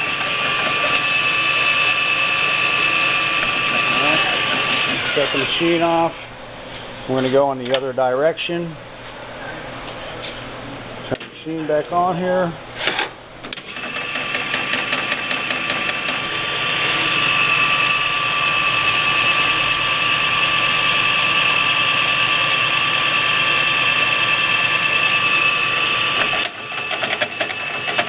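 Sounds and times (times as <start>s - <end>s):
metal lathe gear whine: 0.0s - 6.2s, 13.6s - 28.0s.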